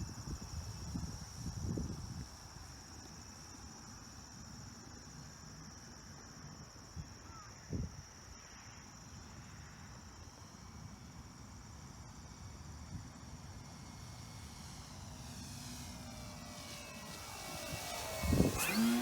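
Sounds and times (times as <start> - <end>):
crickets chirping: 0.0 - 19.0
electric motor whine: 15.0 - 19.0.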